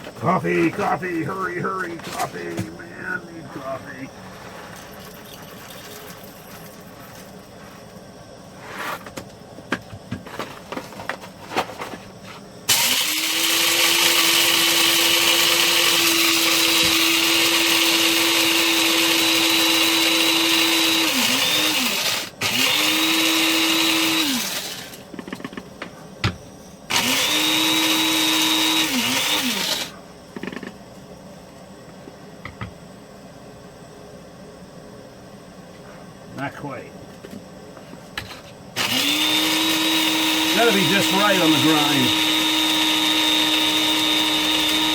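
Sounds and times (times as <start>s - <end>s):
electric coffee grinder grinding: 12.7s - 25.6s, 26.9s - 30.8s, 38.2s - 44.9s.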